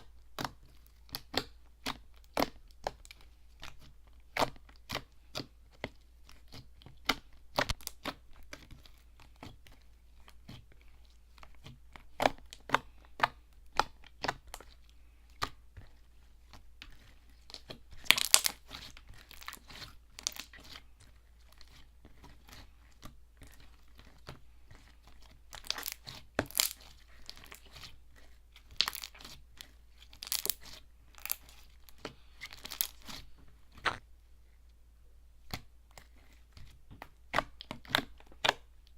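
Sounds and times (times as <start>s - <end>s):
slime clicking and crackling: 0.0s - 10.7s, 16.4s - 34.0s.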